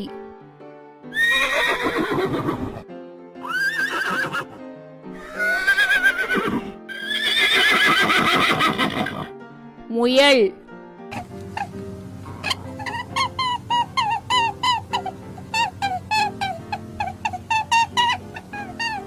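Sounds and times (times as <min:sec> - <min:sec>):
light background music: 0:00.0 - 0:19.0
horse neighing: 0:01.1 - 0:02.8, 0:03.4 - 0:04.6, 0:05.2 - 0:09.3, 0:11.1 - 0:19.0.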